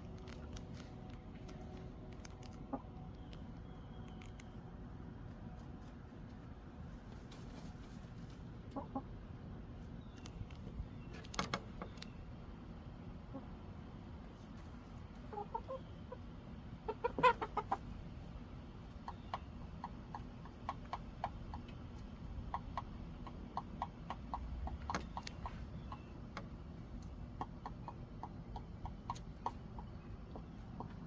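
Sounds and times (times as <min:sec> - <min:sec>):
chickens clucking: 0:02.2 - 0:03.4, 0:07.1 - 0:09.3, 0:13.2 - 0:13.7, 0:14.4 - 0:31.0.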